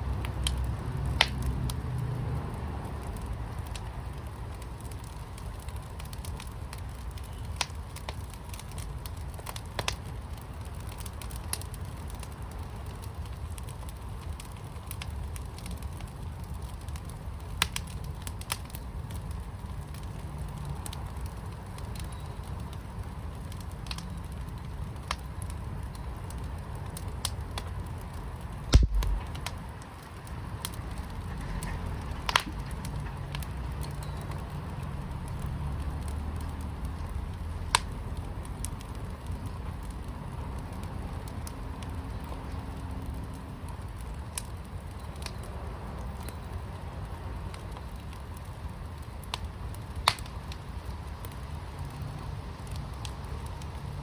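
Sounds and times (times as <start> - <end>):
wood fire crackling: 0.0 - 54.0
loud pop or thump: 28.7 - 29.4
sharp pops: 28.7 - 29.6, 32.2 - 32.8.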